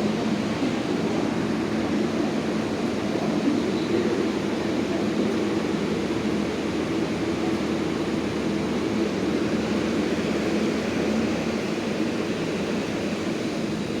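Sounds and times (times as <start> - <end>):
subway train rumble and hiss: 0.0 - 14.0.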